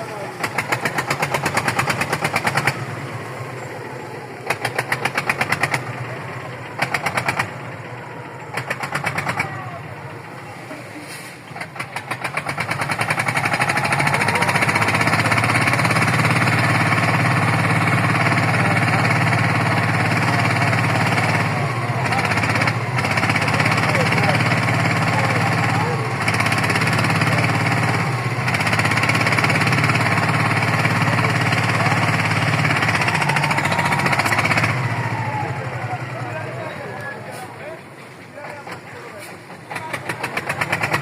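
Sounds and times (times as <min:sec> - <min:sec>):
engine cranking and starting: 0:00.0 - 0:41.0.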